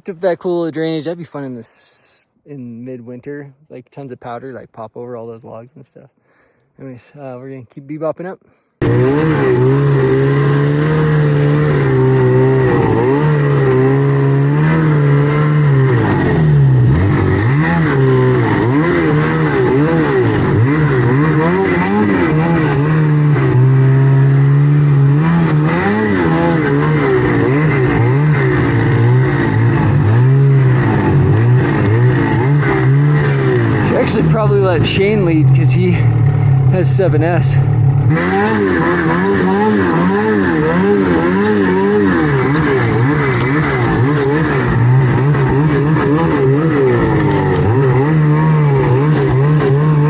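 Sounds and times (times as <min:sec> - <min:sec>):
snowmobile engine under throttle: 0:08.8 - 0:50.0.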